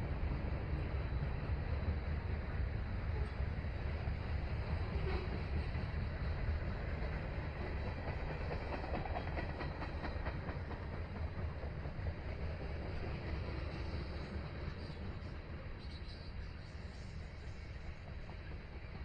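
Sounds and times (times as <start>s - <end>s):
freight train rumbling past: 0.0s - 19.0s
wheels clicking over rail joints: 4.7s - 15.0s.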